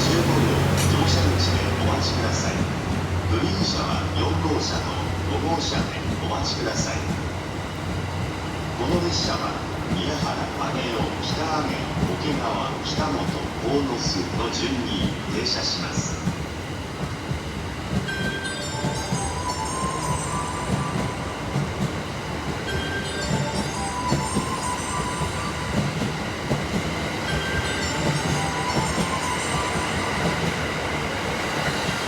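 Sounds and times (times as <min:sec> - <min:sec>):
wheels clacking over rail joints: 0:00.0 - 0:07.2
train rumbling: 0:00.0 - 0:32.0.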